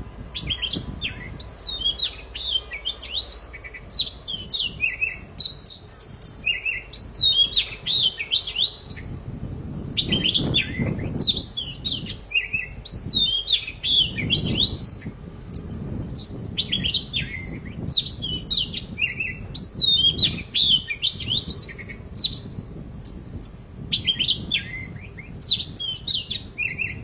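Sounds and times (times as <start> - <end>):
bird singing whistled phrases: 0.4 - 9.1, 10.0 - 27.0.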